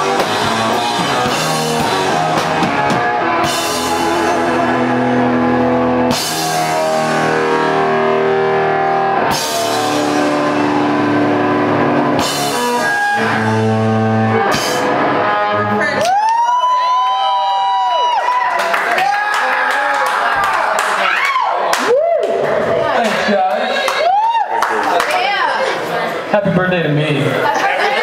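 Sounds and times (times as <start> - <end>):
drum kit: 0.0 - 16.8
electric guitar chords: 0.0 - 17.9.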